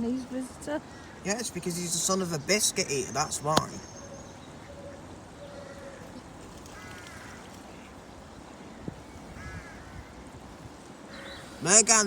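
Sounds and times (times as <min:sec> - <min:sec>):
steady background noise: 0:00.0 - 0:12.0
light knock: 0:03.5 - 0:03.8.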